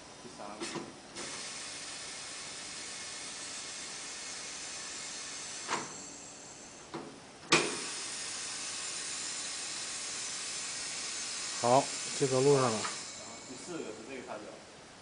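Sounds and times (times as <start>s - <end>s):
pneumatic air hissing: 0.6s - 14.0s
loud clunk: 6.9s - 7.9s.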